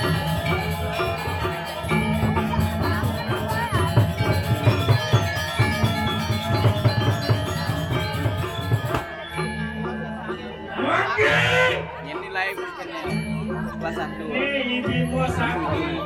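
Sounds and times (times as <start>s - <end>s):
drums: 0.0s - 10.1s
metallophones ringing: 0.0s - 16.0s.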